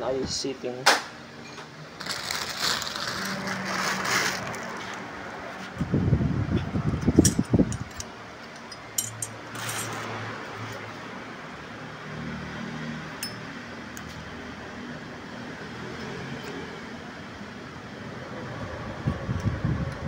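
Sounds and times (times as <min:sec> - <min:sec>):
light metallic clinks: 0:13.2 - 0:13.5.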